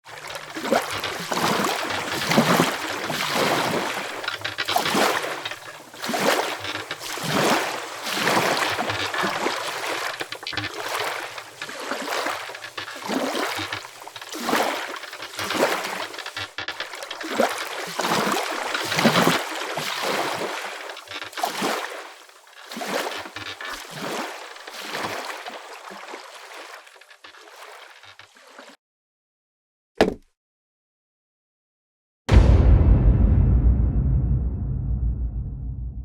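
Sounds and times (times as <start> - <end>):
water splashing and sloshing: 0.0 - 28.8.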